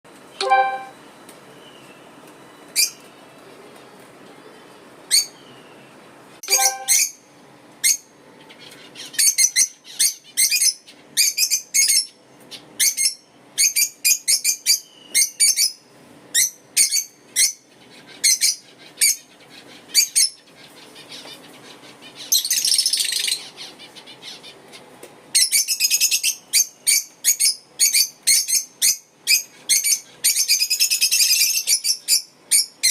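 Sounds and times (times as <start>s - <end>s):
lovebirds chirping: 6.5s - 7.1s.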